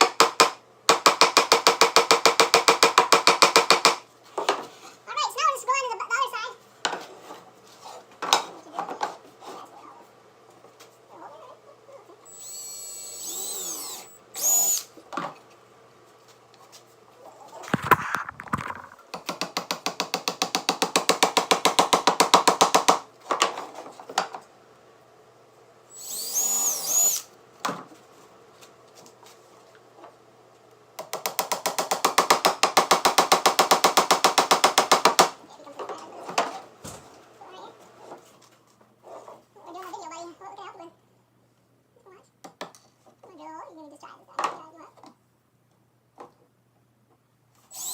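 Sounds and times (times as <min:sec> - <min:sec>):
power drill running: 0:12.3 - 0:14.9, 0:25.9 - 0:27.3.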